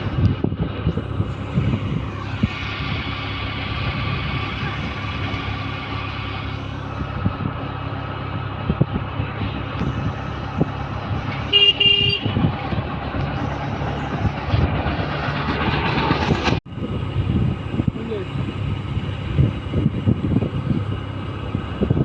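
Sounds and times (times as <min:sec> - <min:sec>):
vehicle engine running: 0:00.0 - 0:22.0
horn toots: 0:11.3 - 0:12.4.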